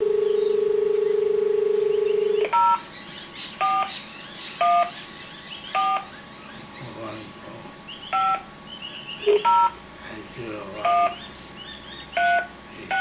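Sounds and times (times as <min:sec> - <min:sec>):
telephone dial tone: 0:00.0 - 0:02.8
touch-tone keypad beeps: 0:02.1 - 0:02.8, 0:03.6 - 0:03.9, 0:04.6 - 0:04.9, 0:05.8 - 0:06.1, 0:08.2 - 0:08.4, 0:09.2 - 0:09.8, 0:10.8 - 0:11.2, 0:12.2 - 0:13.0.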